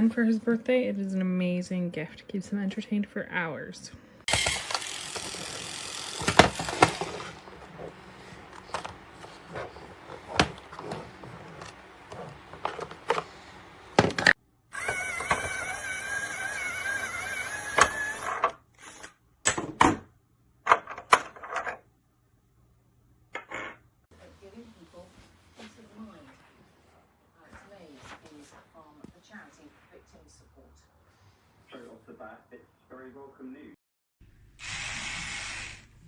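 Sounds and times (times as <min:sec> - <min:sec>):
plastic toy parts clicking: 0:04.3 - 0:07.4
small motor whirring: 0:04.3 - 0:13.3, 0:14.7 - 0:19.1, 0:34.6 - 0:36.0.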